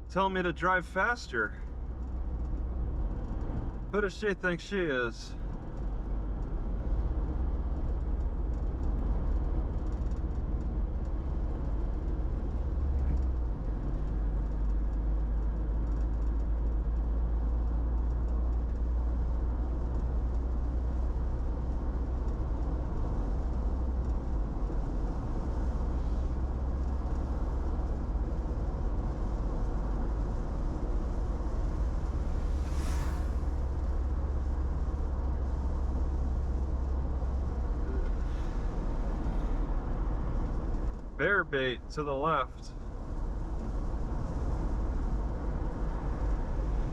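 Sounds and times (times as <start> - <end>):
car road and engine rumble: 0.0 - 46.9
brief rushing swell: 31.9 - 34.2.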